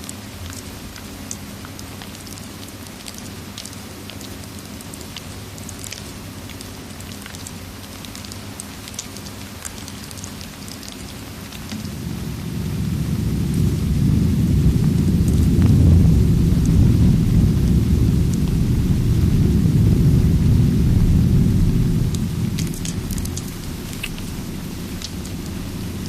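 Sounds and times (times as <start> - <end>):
crackling fireplace: 0.0 - 26.0
steady rain: 0.0 - 26.0
low rumble of thunder: 10.8 - 26.0.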